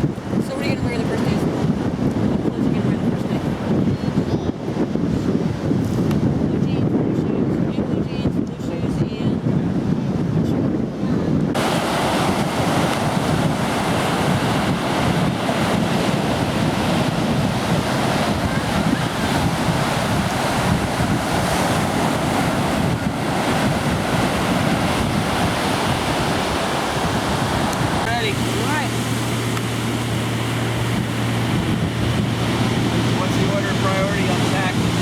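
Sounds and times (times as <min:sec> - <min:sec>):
wind buffeting microphone: 0:00.0 - 0:35.0
ocean surf: 0:11.4 - 0:35.0.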